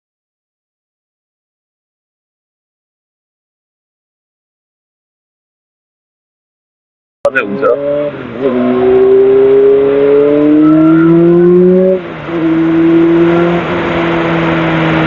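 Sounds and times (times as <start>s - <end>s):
motorcycle engine revving: 7.3s - 15.0s.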